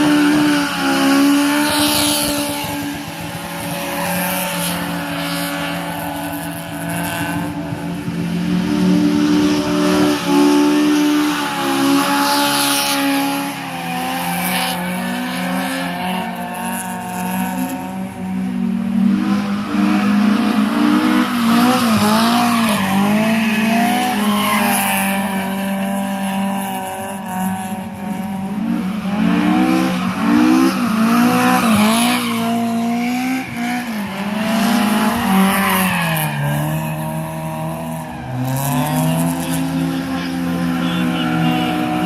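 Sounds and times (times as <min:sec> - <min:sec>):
rally car engine revving hard: 0:00.0 - 0:42.0
tyre squeal: 0:21.4 - 0:26.3.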